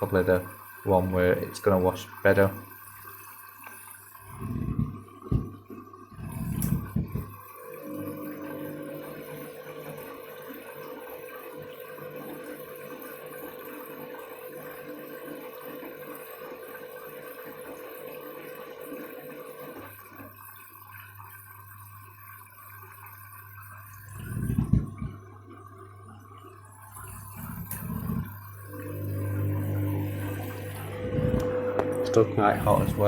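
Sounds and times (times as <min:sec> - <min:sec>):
washing machine motor hum: 0:00.0 - 0:33.0
water rushing into washing machine: 0:00.0 - 0:33.0
drum thumps: 0:04.4 - 0:05.6, 0:24.5 - 0:25.2.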